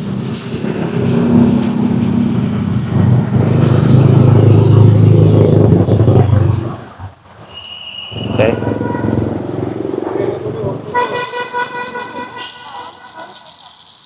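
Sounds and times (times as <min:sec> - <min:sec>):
vehicle engine passing: 0:00.0 - 0:13.9.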